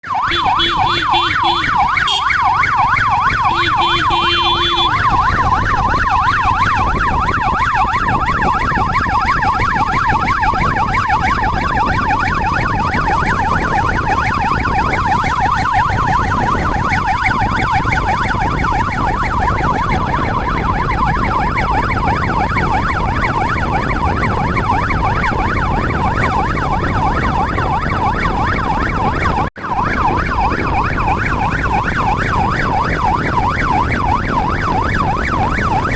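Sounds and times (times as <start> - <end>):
electronic siren yelping: 0.0 - 35.9
low rumble of vehicle noise: 0.0 - 35.9
steady tone: 3.2 - 5.2.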